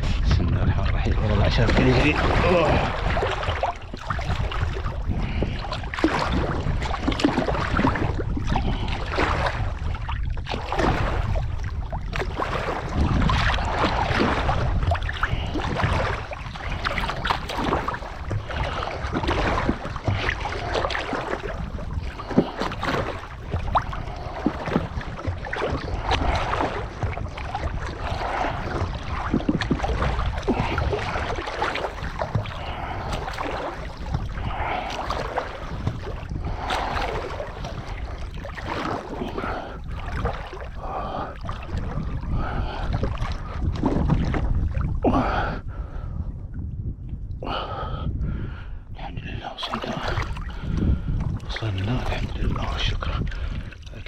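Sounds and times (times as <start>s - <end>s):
low rumble of water and wind: 0.0s - 54.0s
swimmer splashing water: 1.4s - 9.4s, 12.2s - 43.5s.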